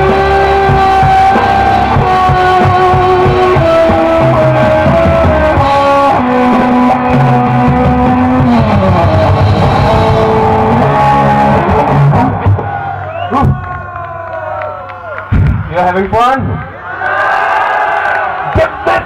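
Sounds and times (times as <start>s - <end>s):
live rock band playing: 0.0s - 14.2s.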